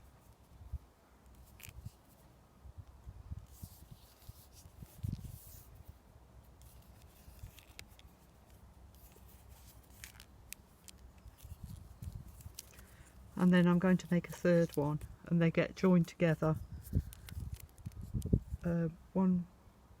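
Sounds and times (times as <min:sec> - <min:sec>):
willow rods rubbing and clicking: 0:03.5 - 0:05.9, 0:06.5 - 0:15.1.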